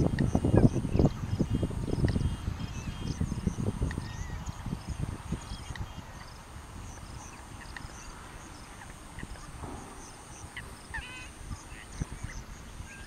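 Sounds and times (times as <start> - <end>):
short high bird calls: 7.0 - 13.0
bird honking call: 7.2 - 13.0.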